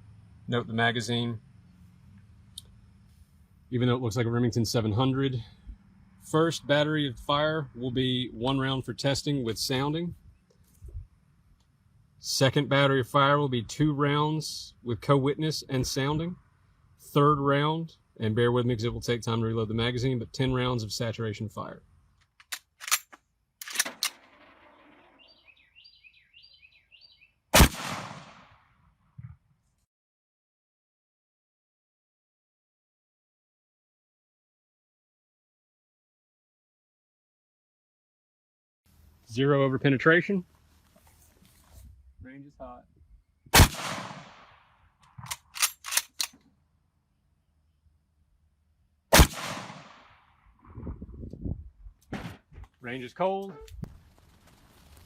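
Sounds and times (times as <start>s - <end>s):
rifle bolt clicks: 22.2s - 24.2s, 45.0s - 46.5s
rifle shot with echo: 23.7s - 25.3s, 27.6s - 28.6s, 43.5s - 44.6s, 49.1s - 50.3s
bird chirping: 24.6s - 27.4s.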